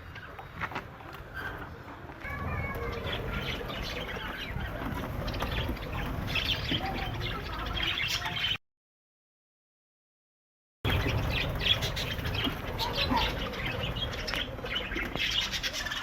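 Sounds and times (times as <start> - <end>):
budgerigars chattering and chirping: 2.7 - 8.6, 10.9 - 16.0.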